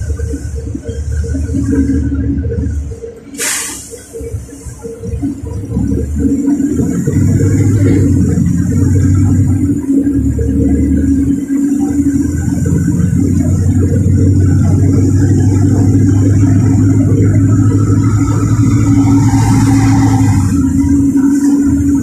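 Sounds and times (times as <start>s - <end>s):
bus engine drone: 0.0s - 22.0s
road and body noise: 0.0s - 22.0s
short air hiss: 3.3s - 4.1s.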